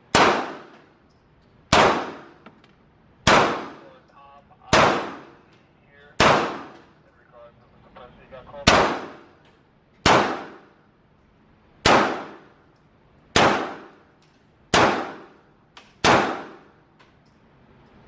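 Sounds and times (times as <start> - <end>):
pistol shots: 0.0 - 0.9, 1.7 - 2.4, 3.2 - 4.0, 4.7 - 5.5, 6.2 - 6.9, 8.6 - 9.4, 10.0 - 10.8, 11.8 - 12.6, 13.3 - 14.1, 14.7 - 16.8.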